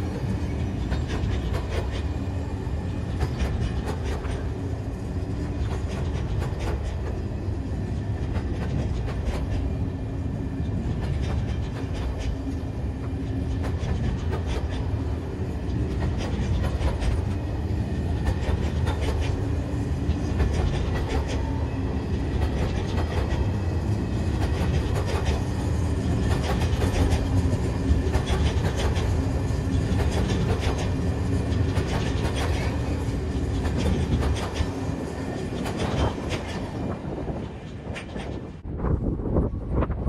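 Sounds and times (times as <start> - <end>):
train wheels clacking over rail joints: 0.0 - 38.6
freight train low rumble: 0.0 - 40.0.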